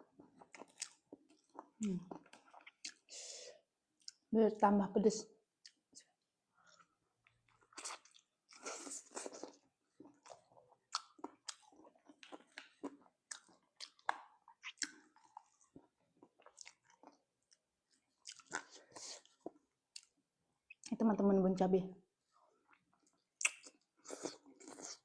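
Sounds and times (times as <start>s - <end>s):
person chewing and crunching: 0.1s - 3.1s, 6.7s - 20.2s, 22.7s - 25.0s
wet mouth smacks: 23.4s - 23.8s.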